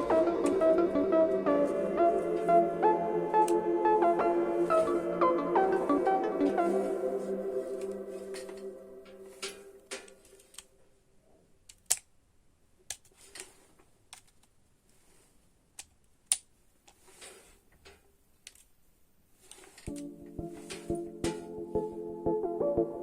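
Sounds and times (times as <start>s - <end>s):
background music: 0.0s - 9.8s, 19.9s - 23.0s.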